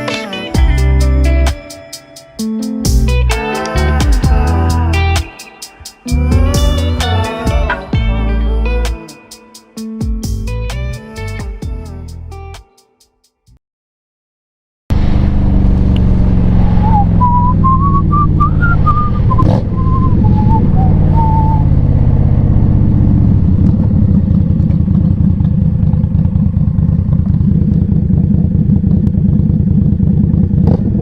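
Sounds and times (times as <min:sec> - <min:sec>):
motorcycle engine running: 0:00.6 - 0:01.6, 0:06.1 - 0:08.2, 0:14.9 - 0:31.0
rushing wind: 0:14.9 - 0:24.8
wavering whistle-like tone: 0:16.6 - 0:21.8.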